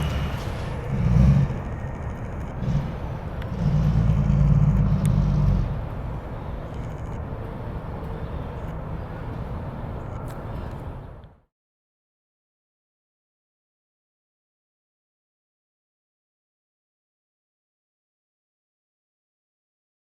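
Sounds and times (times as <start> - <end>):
fire truck engine rumbling: 0.0 - 11.5.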